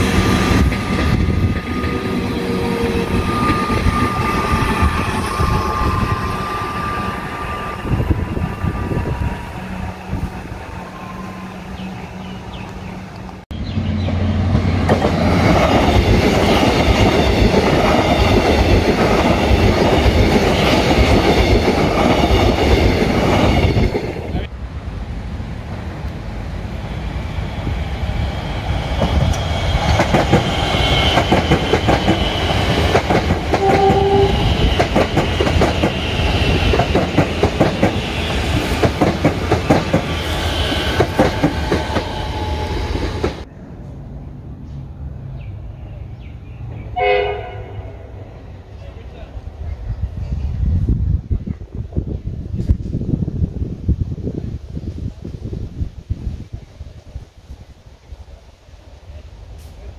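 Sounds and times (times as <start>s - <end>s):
short train horn: 2.4s - 9.9s, 33.5s - 34.8s, 47.0s - 48.3s.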